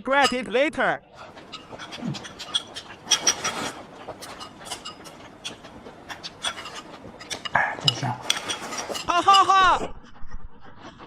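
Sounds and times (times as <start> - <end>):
chewing: 1.2 - 9.5
chopsticks clicking against bowls: 1.2 - 9.5.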